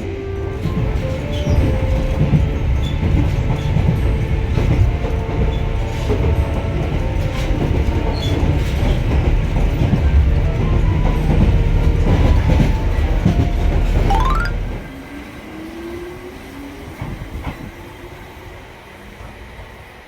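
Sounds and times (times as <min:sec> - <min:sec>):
low rumble of train running gear: 0:00.0 - 0:14.0.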